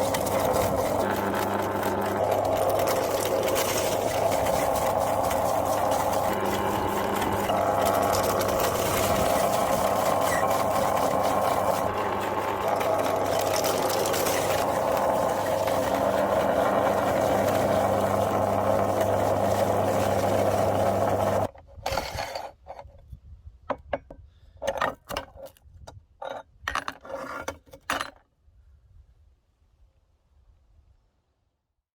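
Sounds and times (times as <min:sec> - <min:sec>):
hard candy crunching: 0:00.0 - 0:21.5
meat grinder humming: 0:00.0 - 0:21.5.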